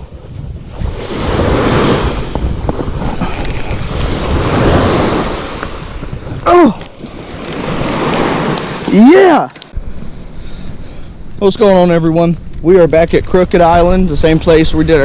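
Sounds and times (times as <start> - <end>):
wind buffeting microphone: 0.0 - 9.0, 9.7 - 15.0
surf washing onto beach: 0.0 - 9.5.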